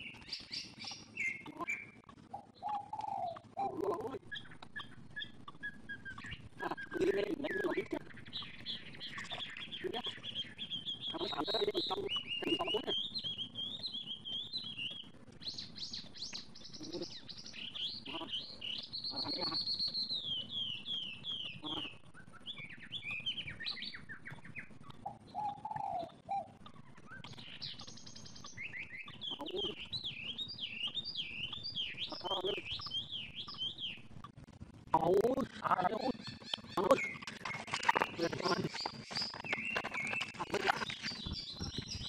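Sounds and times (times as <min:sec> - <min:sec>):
small birds chirping and trilling: 0:00.0 - 0:42.0.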